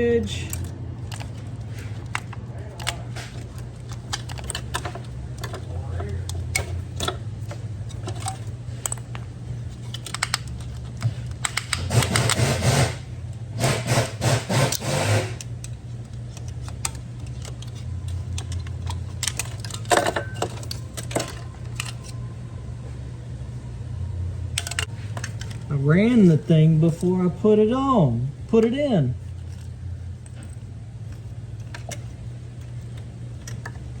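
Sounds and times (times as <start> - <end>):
steady low hum: 0.0 - 34.0
metal tools clinking and rattling: 0.2 - 12.3, 15.6 - 22.3, 24.6 - 27.3.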